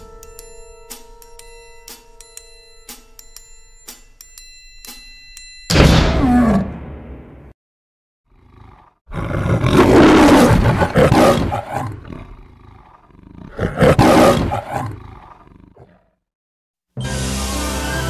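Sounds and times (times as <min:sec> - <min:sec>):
lion roaring: 0:08.4 - 0:16.1.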